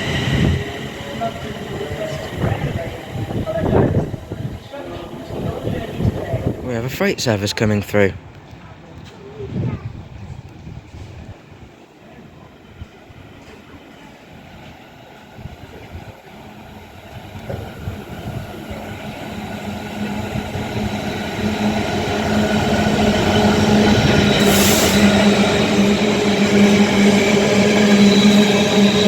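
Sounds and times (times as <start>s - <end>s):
diesel train engine drone: 0.0s - 7.3s, 12.3s - 29.0s.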